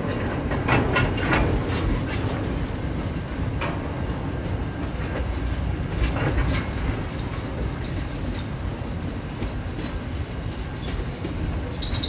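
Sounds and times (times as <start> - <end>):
steel wheels rumbling on rail: 0.0 - 12.0.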